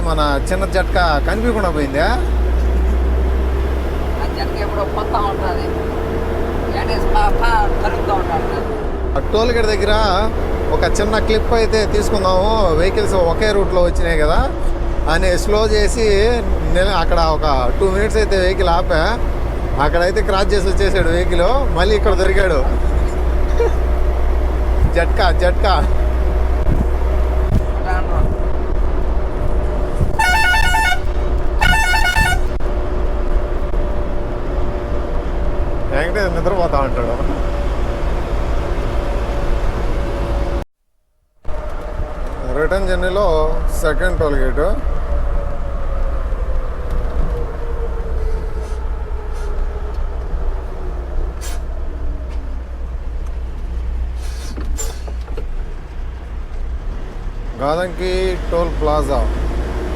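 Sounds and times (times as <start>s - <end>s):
truck engine drone: 0.0s - 40.7s, 41.4s - 59.9s
road noise: 0.0s - 59.9s
warbling musical horn: 30.2s - 32.6s
short hisses: 54.2s - 55.2s.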